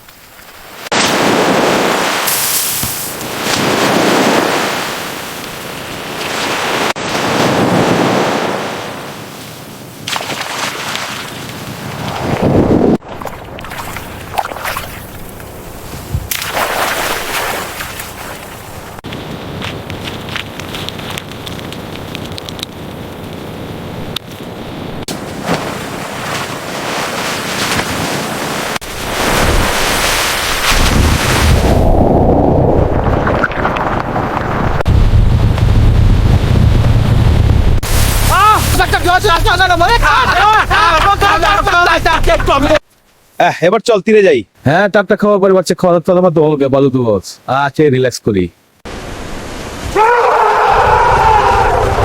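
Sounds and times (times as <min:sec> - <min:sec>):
waves washing in: 0:00.6 - 0:19.8, 0:23.6 - 0:42.8, 0:48.8 - 0:50.0
surf rushing: 0:00.8 - 0:20.2, 0:23.8 - 0:42.8
wind buffeting microphone: 0:11.3 - 0:16.3, 0:30.6 - 0:42.8.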